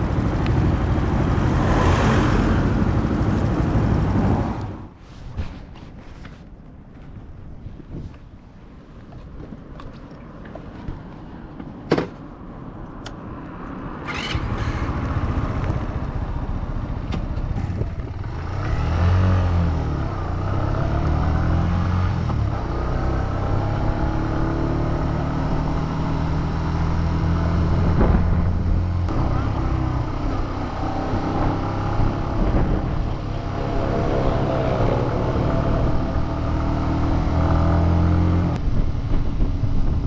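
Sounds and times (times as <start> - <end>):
motorcycle engine revving: 14.0 - 38.6.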